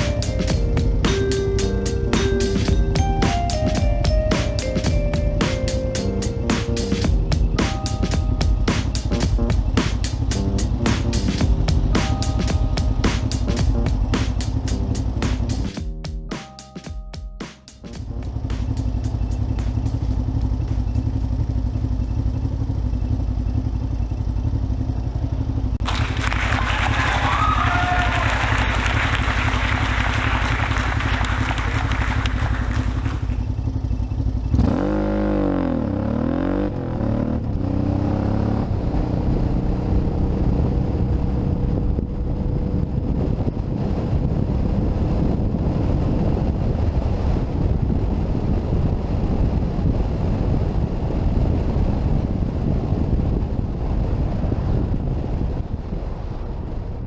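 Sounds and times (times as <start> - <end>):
wind and road noise: 0.0 - 15.8, 18.0 - 57.0
motorcycle engine revving: 8.6 - 12.0, 18.0 - 25.7, 32.3 - 41.2.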